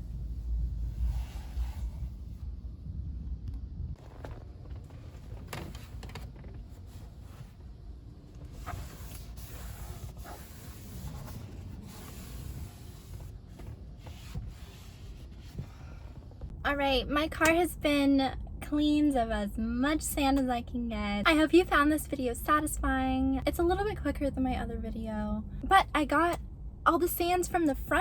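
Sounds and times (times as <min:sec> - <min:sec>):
low rumble: 0:00.0 - 0:20.0
rubbing and wiping: 0:08.4 - 0:16.3.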